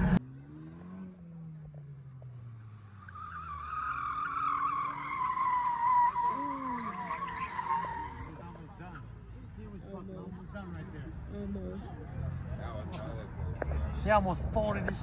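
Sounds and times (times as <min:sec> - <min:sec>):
tires squealing: 0:00.0 - 0:09.8
car engine revving: 0:00.0 - 0:15.0.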